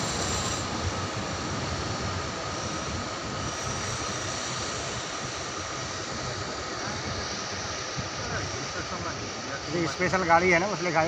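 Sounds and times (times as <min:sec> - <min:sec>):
steel wheels rolling on rails: 0:00.0 - 0:07.3.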